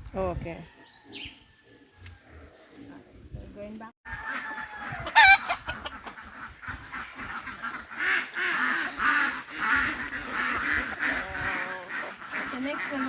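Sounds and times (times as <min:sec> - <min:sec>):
ducks quacking: 0:04.2 - 0:13.0.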